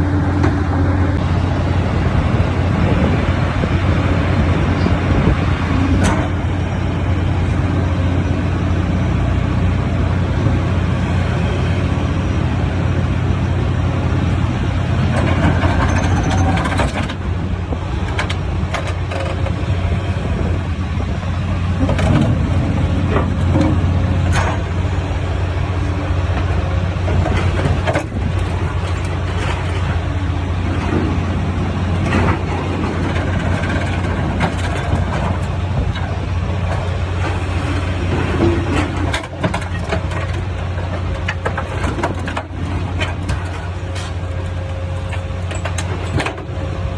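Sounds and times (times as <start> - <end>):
heavy engine and hydraulics droning: 0.0 - 46.9
metal clanks and creaks: 14.3 - 46.5.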